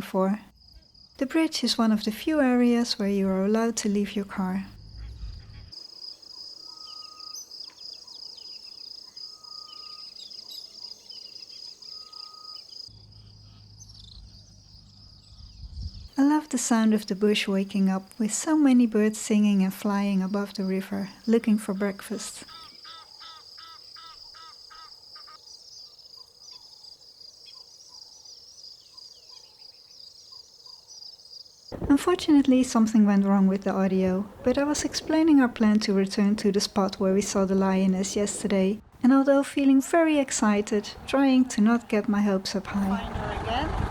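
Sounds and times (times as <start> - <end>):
insect trill: 0.5 - 1.2, 4.7 - 16.2, 22.4 - 31.9
small birds chirping: 1.0 - 18.0, 19.3 - 43.9
bird repeating a call: 6.6 - 8.2, 11.8 - 12.8, 22.4 - 25.4
bird whistling: 6.6 - 8.2, 9.0 - 12.7.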